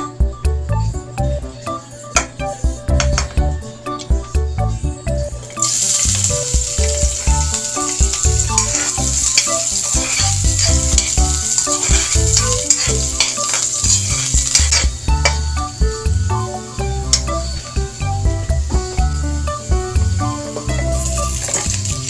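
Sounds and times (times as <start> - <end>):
onion and garlic sizzling in oil: 5.4 - 22.0
metal spatula scraping wok: 5.6 - 15.5, 20.9 - 21.9.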